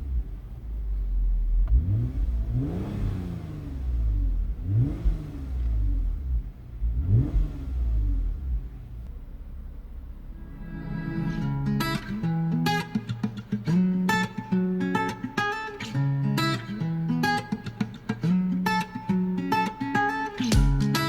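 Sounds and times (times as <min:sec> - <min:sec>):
car engine revving: 0:00.0 - 0:14.4.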